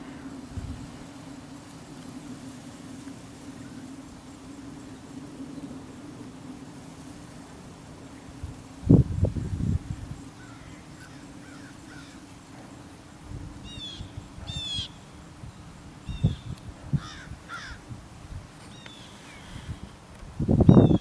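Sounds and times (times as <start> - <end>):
steady low hum: 0.0 - 21.0
bird calling: 13.7 - 15.0, 18.6 - 19.8.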